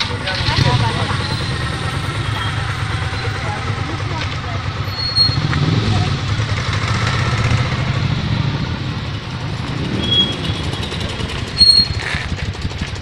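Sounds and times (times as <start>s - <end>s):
motorcycle engine at low revs: 0.0s - 13.0s
shrill high tone: 0.6s - 5.5s.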